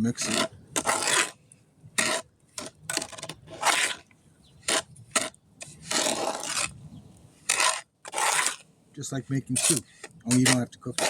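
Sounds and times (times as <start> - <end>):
tool scraping through wet concrete: 0.0 - 1.4, 2.0 - 4.1, 4.7 - 6.8, 7.4 - 8.7, 9.3 - 11.0.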